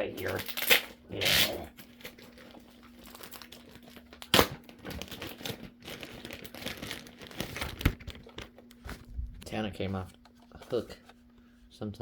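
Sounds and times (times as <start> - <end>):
packaging crinkling: 0.0 - 9.2
packing tape peeling: 0.2 - 2.4, 3.0 - 8.5.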